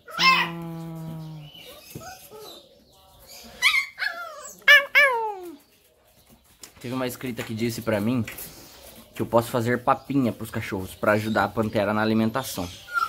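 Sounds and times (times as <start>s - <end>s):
puppy whining and yelping: 0.0s - 0.6s, 1.7s - 2.6s, 3.6s - 5.6s.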